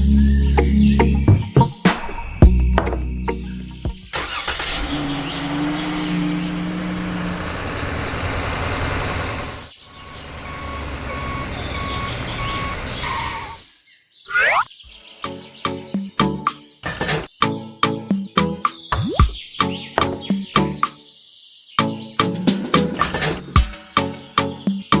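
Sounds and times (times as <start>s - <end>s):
vehicle engine running: 4.2s - 9.7s
reversing alarm beeping: 10.0s - 12.9s.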